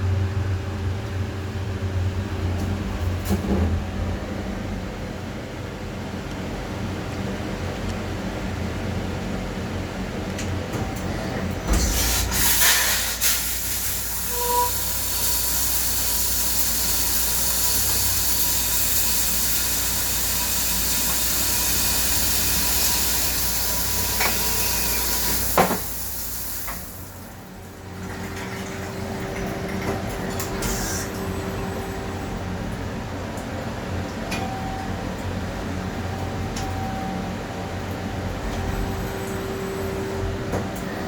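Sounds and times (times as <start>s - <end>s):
low machine hum: 0.0s - 12.5s, 13.6s - 41.0s
loud machine hiss: 11.8s - 27.2s.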